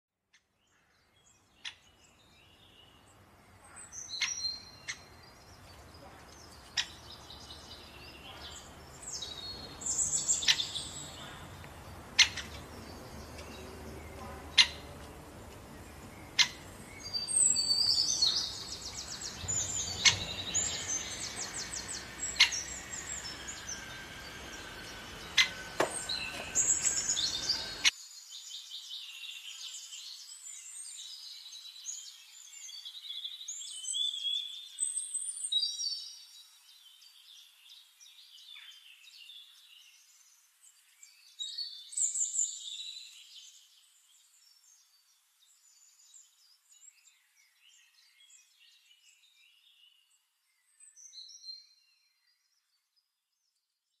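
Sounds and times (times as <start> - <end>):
birds chirping: 0.6 - 36.2.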